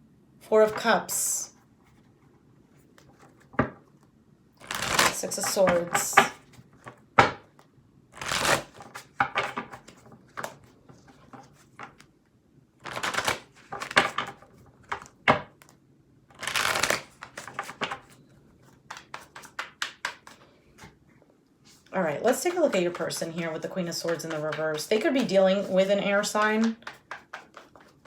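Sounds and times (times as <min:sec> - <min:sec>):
cards riffling: 0:08.2 - 0:10.6, 0:12.8 - 0:15.1, 0:16.3 - 0:18.2.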